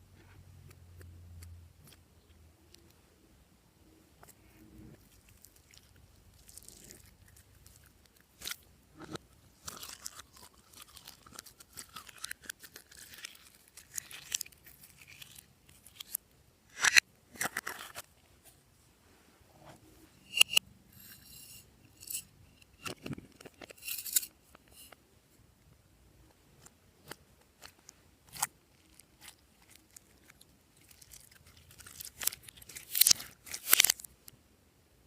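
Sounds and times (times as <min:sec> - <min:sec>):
slime crackling and popping: 0:28.3 - 0:34.1.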